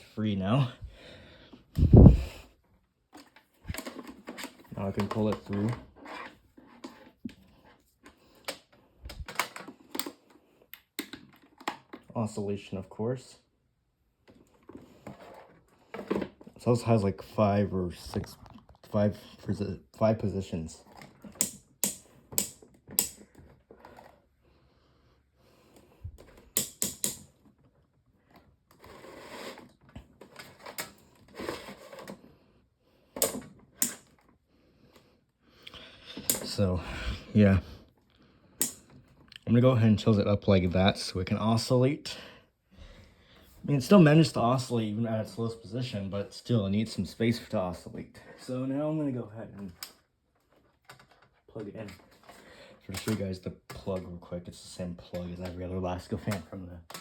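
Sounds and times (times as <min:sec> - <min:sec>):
handling and rubbing noise: 0:01.6 - 0:08.1.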